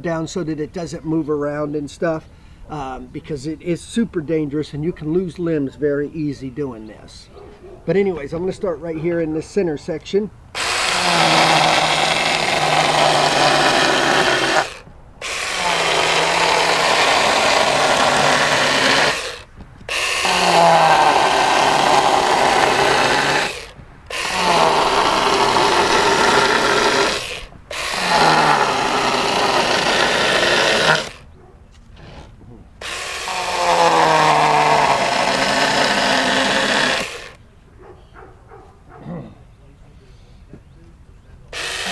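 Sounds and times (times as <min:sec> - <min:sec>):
electric chainsaw cutting wood: 0:10.5 - 0:31.3, 0:32.8 - 0:37.4, 0:41.5 - 0:41.9.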